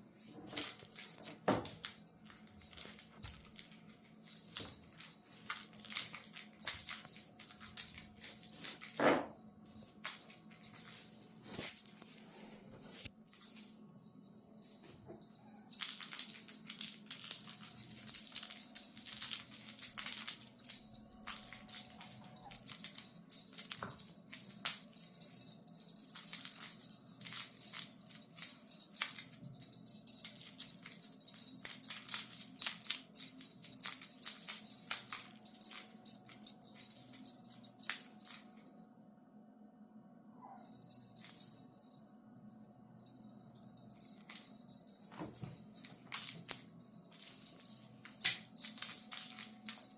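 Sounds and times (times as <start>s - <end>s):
kittens batting cat toy: 13.4s - 38.6s, 43.0s - 49.9s.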